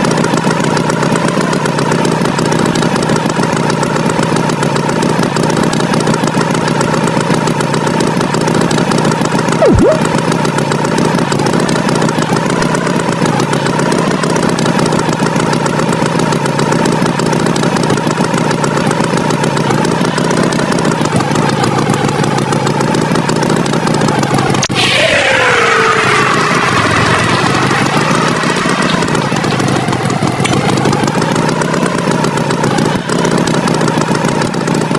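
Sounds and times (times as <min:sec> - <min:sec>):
cartoon tractor engine drone: 0:00.0 - 0:34.9
quick falling swoop: 0:09.6 - 0:10.1.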